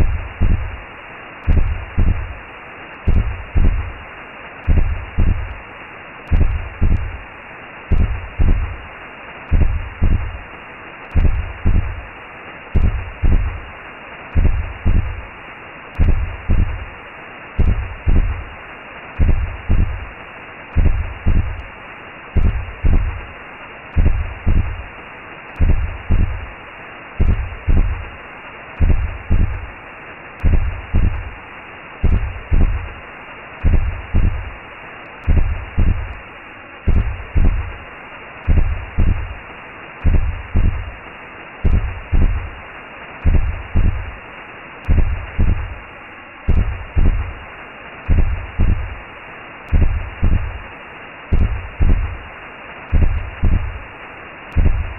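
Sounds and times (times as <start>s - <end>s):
slow heartbeat thumps: 0.0s - 0.8s, 1.4s - 2.4s, 3.0s - 4.0s, 4.6s - 5.6s, 6.3s - 7.2s, 7.9s - 8.8s, 9.5s - 10.4s, 11.1s - 12.1s, 12.8s - 13.7s, 14.3s - 15.3s, 16.0s - 16.9s, 17.6s - 18.5s, 19.2s - 20.1s, 20.7s - 21.7s, 22.4s - 23.3s, 23.9s - 24.9s, 25.6s - 26.5s, 27.2s - 28.2s, 28.8s - 29.7s, 30.4s - 31.4s, 32.0s - 33.0s, 33.6s - 34.6s, 35.2s - 36.2s, 36.9s - 37.8s, 38.4s - 39.4s, 40.0s - 41.0s, 41.6s - 42.6s, 43.2s - 44.2s, 44.8s - 45.8s, 46.5s - 47.4s, 48.1s - 49.0s, 49.7s - 50.7s, 51.3s - 52.2s, 52.9s - 53.8s, 54.5s - 54.9s
muffled whooshing hiss: 0.0s - 54.9s.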